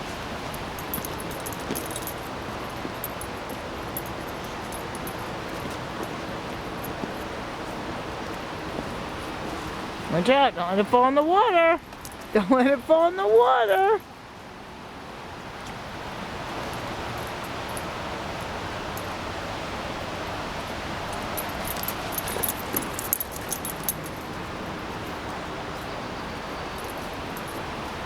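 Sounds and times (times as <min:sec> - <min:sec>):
rushing water: 0:00.0 - 0:28.0
light metallic jingling: 0:00.3 - 0:14.1, 0:16.6 - 0:19.2, 0:20.5 - 0:28.0.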